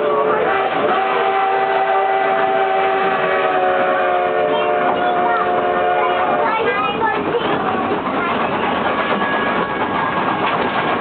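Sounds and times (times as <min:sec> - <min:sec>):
steam locomotive whistle: 0:00.0 - 0:06.5
moving train noise: 0:00.0 - 0:11.0.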